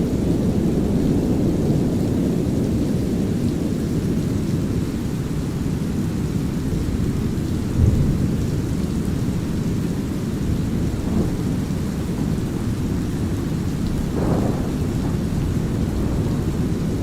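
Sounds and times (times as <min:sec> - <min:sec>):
light rain: 0:00.0 - 0:17.0
thunder rolling: 0:07.7 - 0:09.5, 0:10.4 - 0:17.0.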